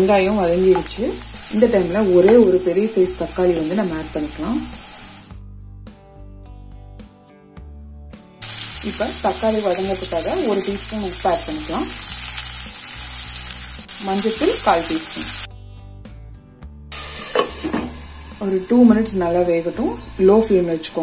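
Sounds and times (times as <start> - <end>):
food sizzling in a pan: 0.0 - 5.4, 8.4 - 15.5, 16.9 - 21.0
soft background music: 0.0 - 21.0.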